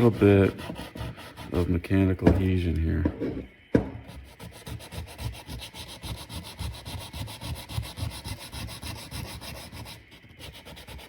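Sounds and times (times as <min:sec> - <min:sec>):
sandpaper scuffing metal: 0:00.0 - 0:01.8, 0:04.1 - 0:11.0.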